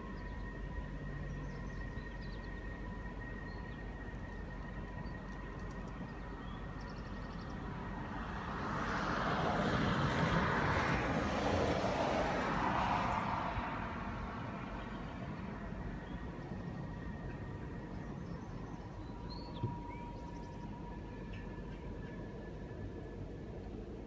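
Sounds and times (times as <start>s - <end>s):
car passing on highway: 7.5s - 18.8s.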